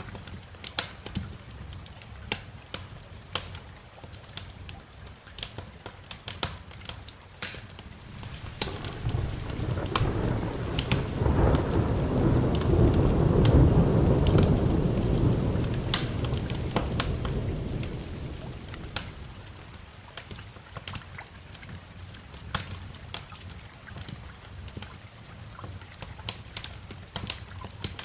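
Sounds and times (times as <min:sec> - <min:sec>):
wood fire crackling and popping: 0:00.0 - 0:04.7, 0:05.3 - 0:28.0
rain: 0:00.0 - 0:28.0
thunder rumbling: 0:08.0 - 0:20.1.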